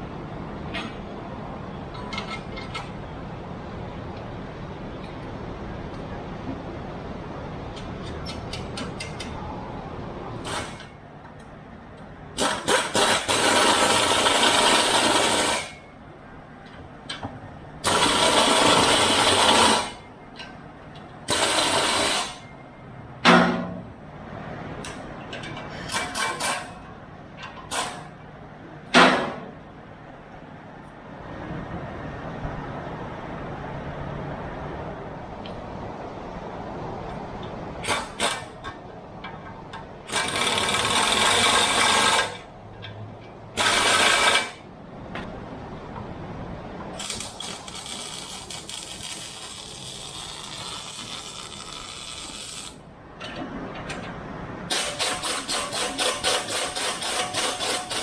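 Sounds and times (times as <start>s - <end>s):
low shop noise: 0.0s - 58.0s
hissing crackling tool bursts: 47.0s - 52.8s.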